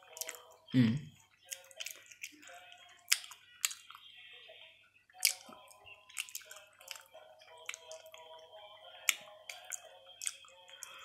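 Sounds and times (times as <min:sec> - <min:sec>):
chewing chocolate bar: 0:00.0 - 0:00.6, 0:01.2 - 0:04.1, 0:05.1 - 0:11.0.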